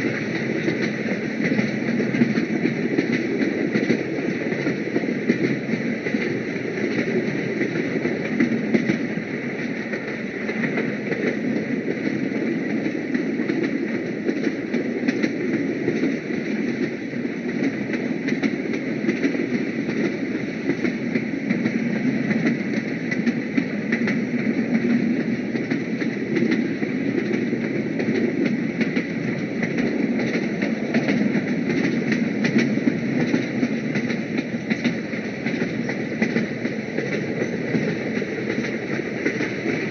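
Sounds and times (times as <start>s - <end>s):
short clicks of train: 0.0s - 39.9s
train rumbling: 0.0s - 39.9s.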